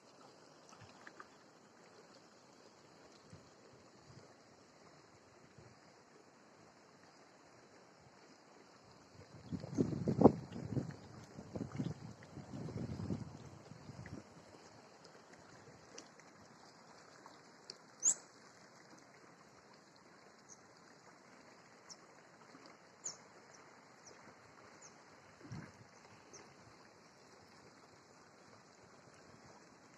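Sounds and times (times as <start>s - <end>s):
small birds chirping: 18.0s - 18.2s.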